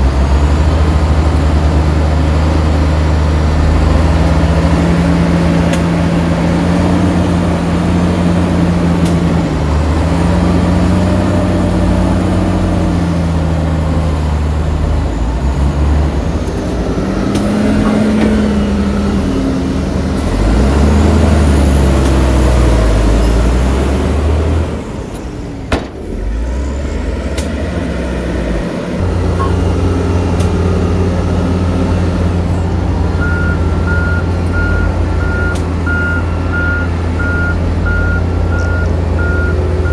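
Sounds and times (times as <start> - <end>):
heavy diesel engines revving: 0.0 - 39.9
reversing alarm beeping: 29.3 - 29.8, 33.2 - 39.9.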